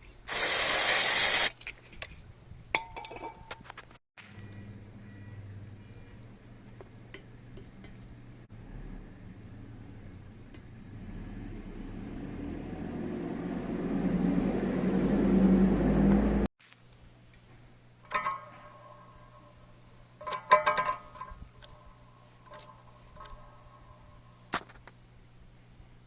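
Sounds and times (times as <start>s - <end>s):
low hum: 4.2s - 16.5s
exhaust fan running: 8.6s - 16.5s.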